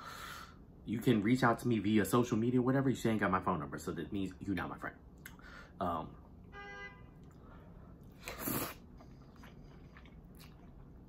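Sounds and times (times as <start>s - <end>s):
person chewing: 7.2s - 11.0s.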